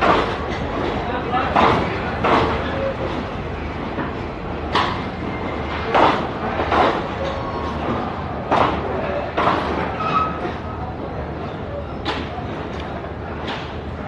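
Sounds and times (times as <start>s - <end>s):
people talking: 0.0s - 3.4s, 5.9s - 9.9s.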